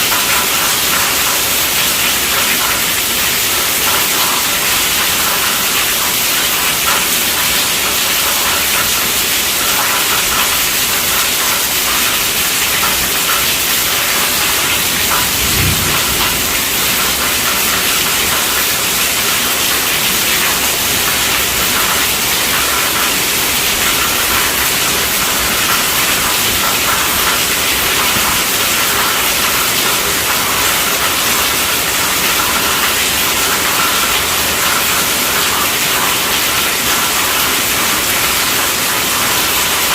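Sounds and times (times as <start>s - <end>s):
heavy rain: 0.0s - 39.9s
low thump: 15.4s - 16.7s.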